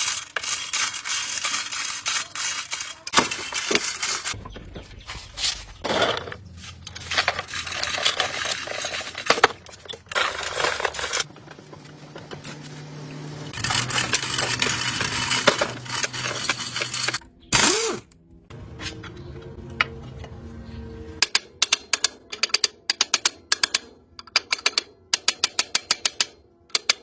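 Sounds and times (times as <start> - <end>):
metal tools clinking and scraping: 0.0 - 11.8, 13.3 - 17.7.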